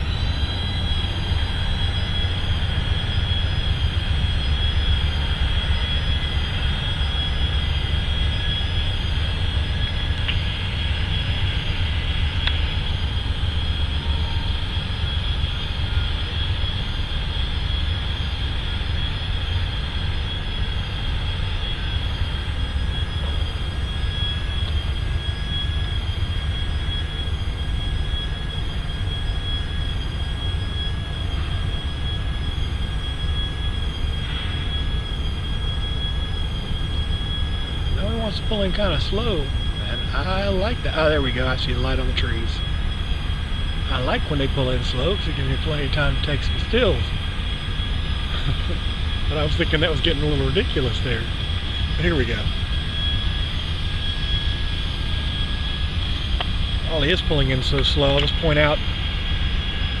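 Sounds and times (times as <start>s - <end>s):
diesel train rumbling: 0.0s - 26.1s, 33.7s - 60.0s
high-pitched squeal: 56.2s - 59.0s.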